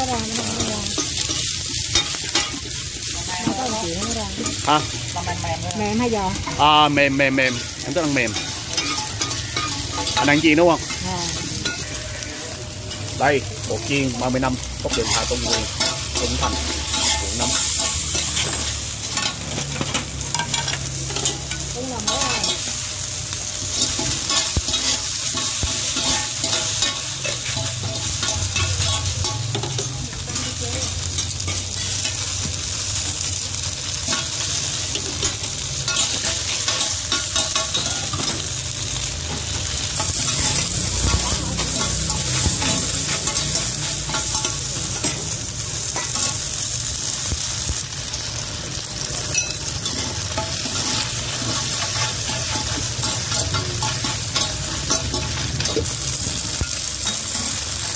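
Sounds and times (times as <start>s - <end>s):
food sizzling in oil: 0.0s - 57.9s
metal spatulas scraping a pan: 0.8s - 3.7s, 7.3s - 13.8s, 14.4s - 46.5s, 49.3s - 57.9s.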